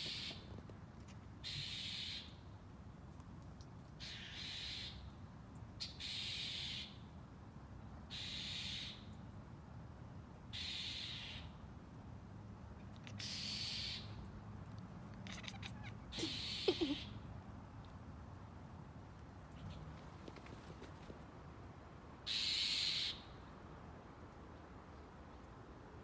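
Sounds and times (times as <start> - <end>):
cat hissing: 15.2 - 17.2.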